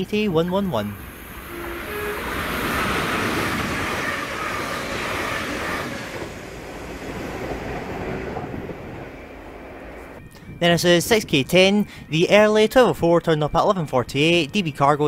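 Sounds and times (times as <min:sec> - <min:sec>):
train passing at speed: 0:00.6 - 0:10.6.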